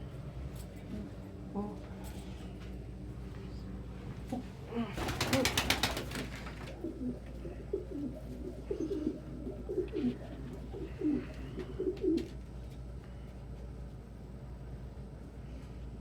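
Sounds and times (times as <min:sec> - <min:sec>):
pigeons cooing: 0:04.7 - 0:12.4
rapid wing fluttering: 0:05.0 - 0:06.8.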